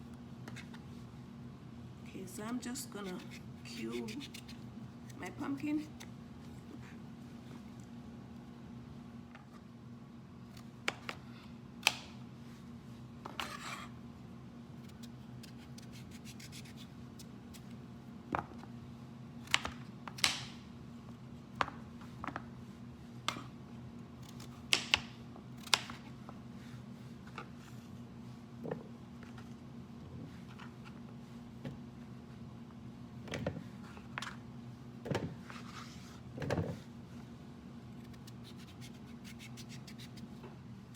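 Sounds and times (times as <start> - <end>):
knife scraping: 2.9 - 5.2, 13.4 - 14.0, 14.9 - 16.9, 38.0 - 40.3.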